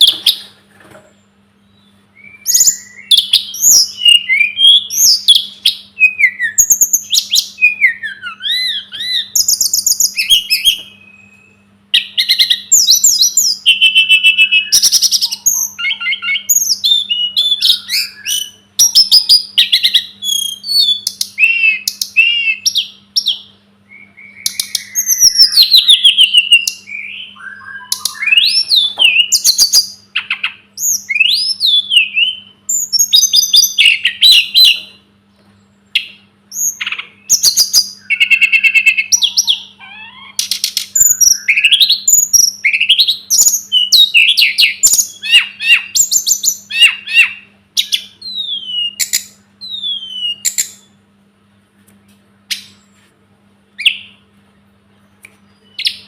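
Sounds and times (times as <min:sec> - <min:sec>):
songbird singing: 0:00.0 - 0:51.1, 0:53.7 - 0:56.0.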